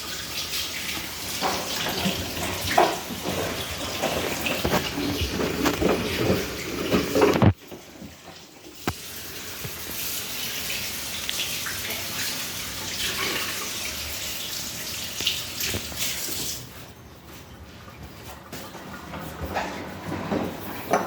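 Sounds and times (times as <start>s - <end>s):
water rushing in washing machine: 0.0s - 16.8s.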